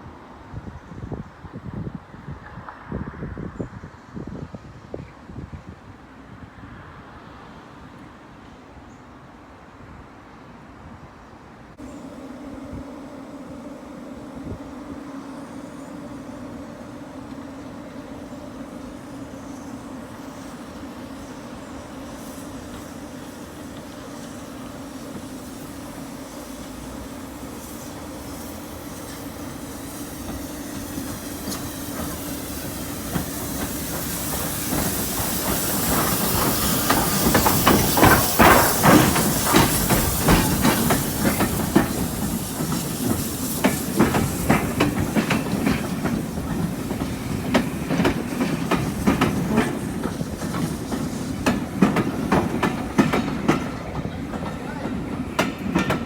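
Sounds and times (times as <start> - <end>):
train wheels clickety-clack: 14.4 - 56.0.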